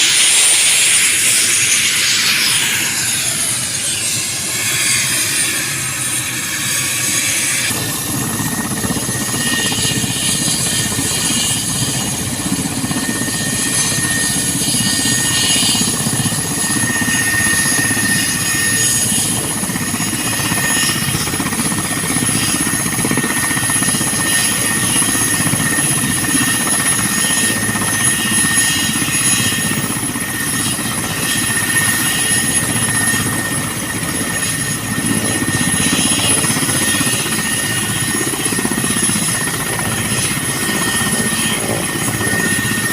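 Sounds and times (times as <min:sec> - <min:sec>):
helicopter rotor noise: 0:00.0 - 0:42.9
high turbine whine: 0:00.0 - 0:42.9.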